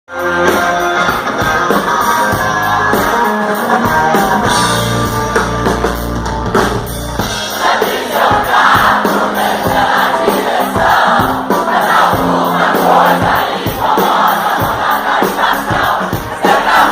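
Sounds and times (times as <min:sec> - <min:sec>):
live rock band playing: 0:00.1 - 0:16.9
crowd cheering: 0:00.2 - 0:16.9
heavy bass: 0:00.2 - 0:16.9.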